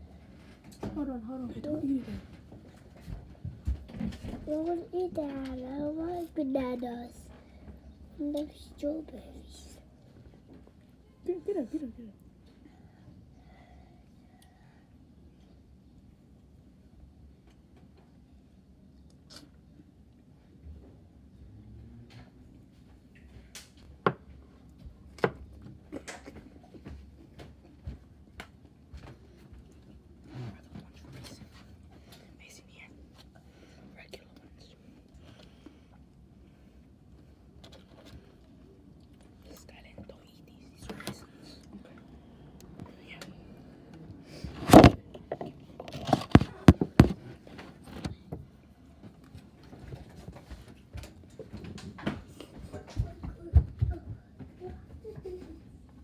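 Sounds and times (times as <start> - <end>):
objects knocking and thudding: 44.5 - 48.4.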